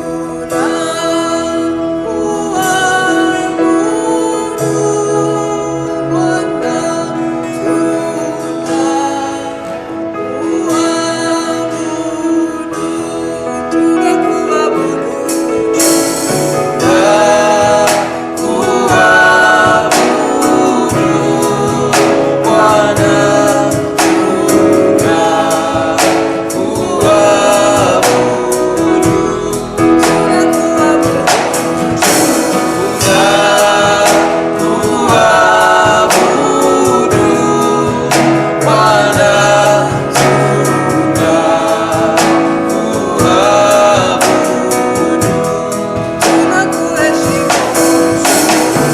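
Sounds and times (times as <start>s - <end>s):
singers with choir: 0.0s - 48.9s
band with steady drum beat: 15.3s - 48.9s.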